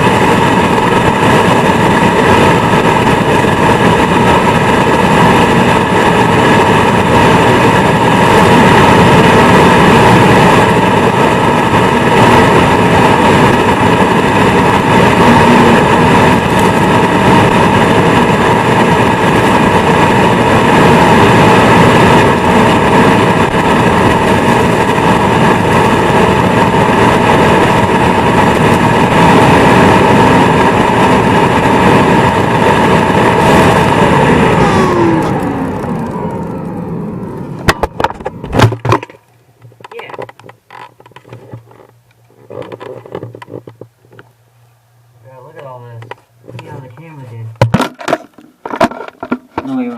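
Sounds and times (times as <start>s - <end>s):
vacuum cleaner motor whine: 0.0s - 39.2s
rushing air: 0.0s - 39.7s.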